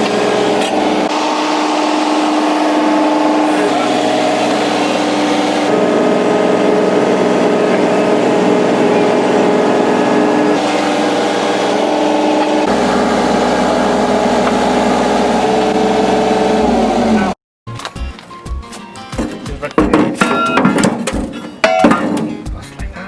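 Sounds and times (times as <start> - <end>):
pile driver engine running: 0.0 - 17.4.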